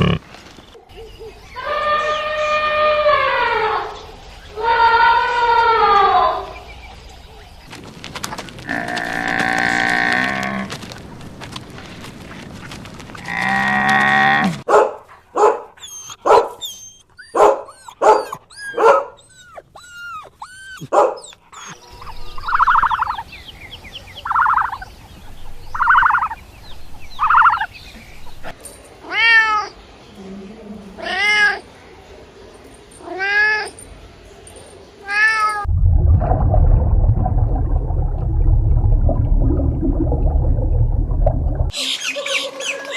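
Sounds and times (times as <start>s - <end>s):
animal calls: 15.4s - 23.3s
low rough sound: 35.7s - 41.7s.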